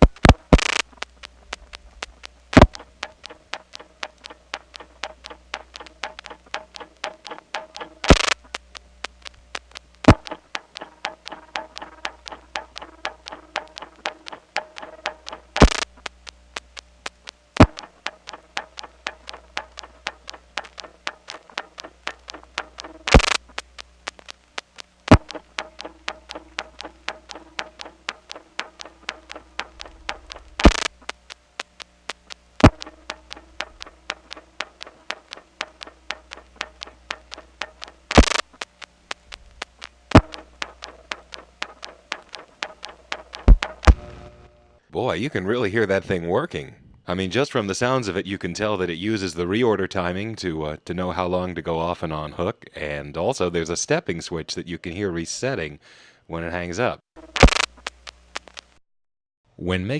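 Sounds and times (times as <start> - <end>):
burst of line noise: 0.0 - 10.6, 11.2 - 16.2, 17.5 - 44.8.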